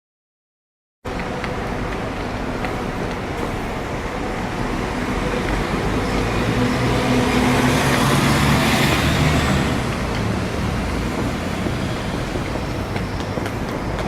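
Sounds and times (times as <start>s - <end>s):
vehicle engine humming: 1.1s - 14.0s.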